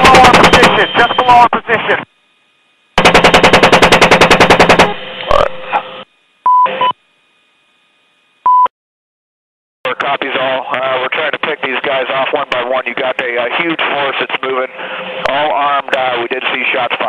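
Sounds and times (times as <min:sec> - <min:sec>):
short radio beep tones: 0:00.1 - 0:01.6, 0:06.5 - 0:07.0, 0:08.4 - 0:08.7
chain gun firing burst: 0:03.0 - 0:05.0.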